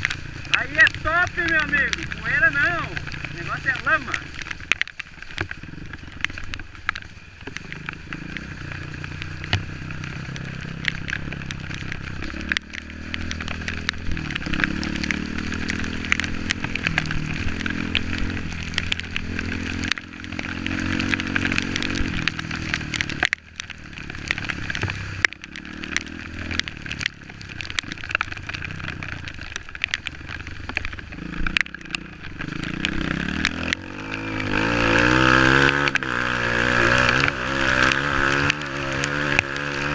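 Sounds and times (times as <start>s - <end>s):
motorcycle engine revving: 0.0s - 39.9s
sharp clicks and knocks: 10.3s - 39.9s.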